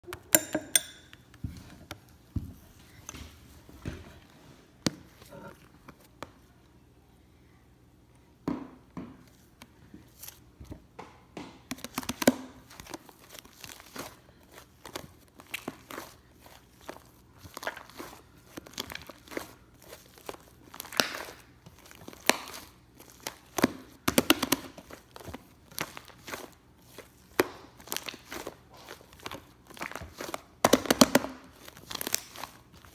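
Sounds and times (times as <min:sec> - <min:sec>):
slime squelching by hand: 0:11.8 - 0:32.9.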